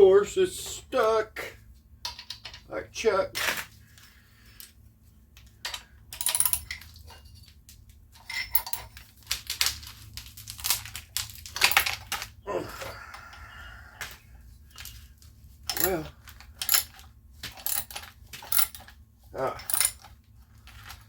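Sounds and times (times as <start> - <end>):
metallic clinks of hand tools: 15.7 - 17.0, 19.5 - 20.1.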